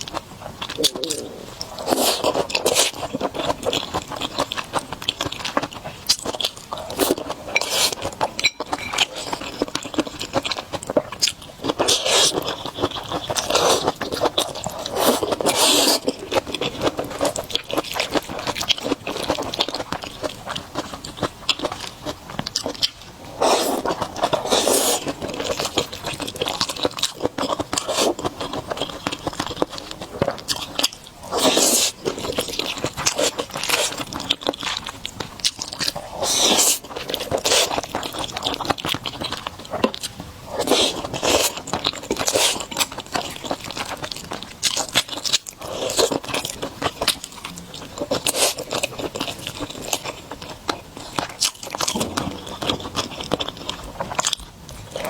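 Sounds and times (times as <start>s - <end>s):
person chewing and crunching food: 0.0s - 55.0s
wet mouth sounds: 0.6s - 3.0s.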